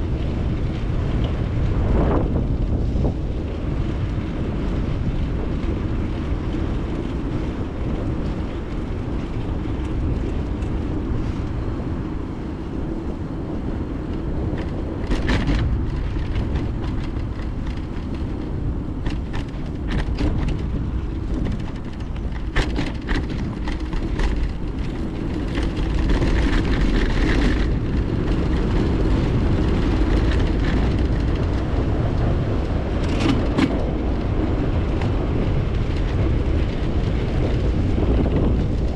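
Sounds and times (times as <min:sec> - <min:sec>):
bicycle tyres rolling: 0:00.0 - 0:38.9
wind on microphone: 0:00.0 - 0:38.9
bike knocks and rattles: 0:14.0 - 0:38.9.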